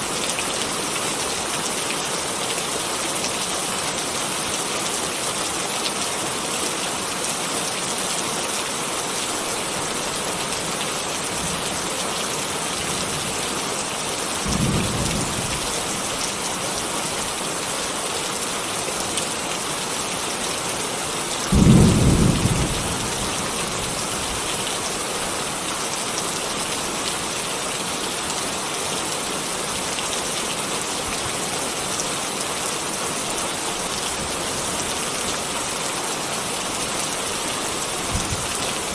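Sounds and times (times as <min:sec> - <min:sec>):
steady rain: 0:00.0 - 0:38.9
thunder rumbles: 0:21.5 - 0:24.0.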